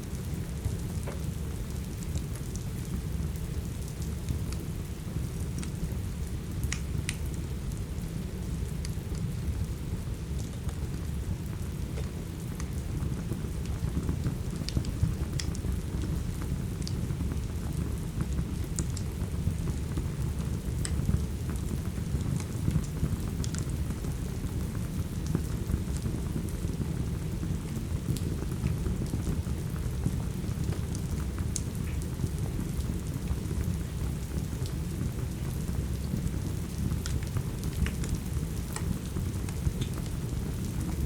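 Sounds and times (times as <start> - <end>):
steady rain: 0.0 - 41.0
wood fire crackling and popping: 6.6 - 7.3, 11.5 - 41.0.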